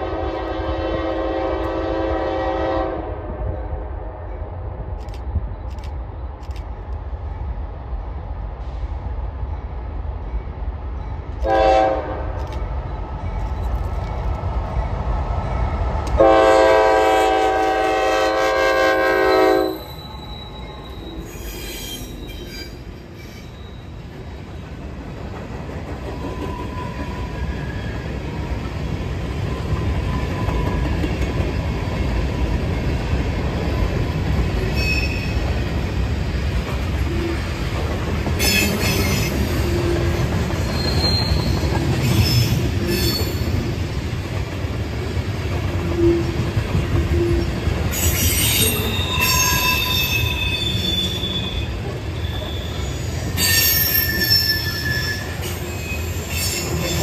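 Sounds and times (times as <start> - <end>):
locomotive air horn: 0.0 - 3.2, 11.4 - 12.3, 16.2 - 19.9
train rumbling past: 0.0 - 57.0
wheels squealing: 19.6 - 24.1, 38.4 - 43.7, 48.0 - 57.0.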